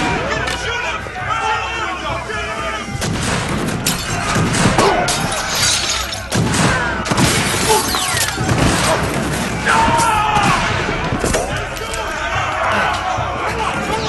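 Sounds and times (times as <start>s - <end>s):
dramatic music: 0.0s - 14.0s
people shouting: 0.0s - 14.0s
crashing and smashing: 3.0s - 12.3s.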